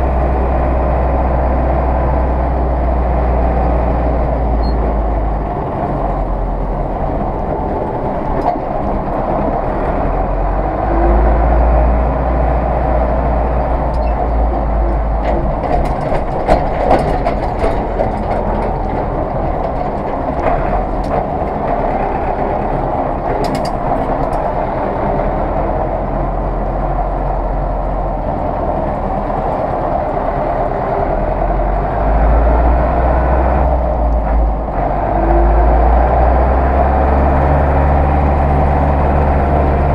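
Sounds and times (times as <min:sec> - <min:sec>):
tractor diesel engine running: 0:00.0 - 0:39.9
rattling clanks: 0:13.9 - 0:24.6.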